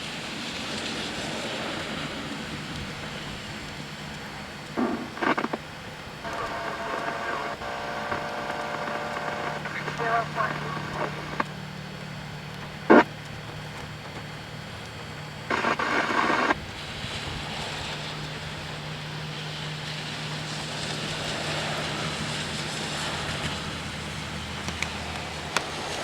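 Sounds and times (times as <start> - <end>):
rain hissing on wet street: 0.0 - 5.1, 16.5 - 26.0
low steady hum: 0.1 - 26.0
harsh noise burst: 6.2 - 13.2, 15.4 - 16.6.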